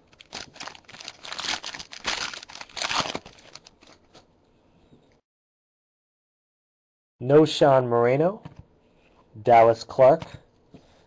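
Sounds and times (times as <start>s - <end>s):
wrapper tearing and crinkling: 0.0s - 4.1s.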